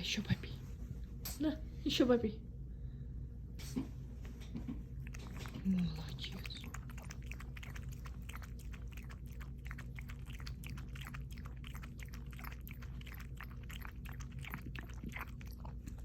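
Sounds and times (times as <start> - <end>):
steady low hum: 0.0 - 16.0
dog lapping water: 4.8 - 16.0.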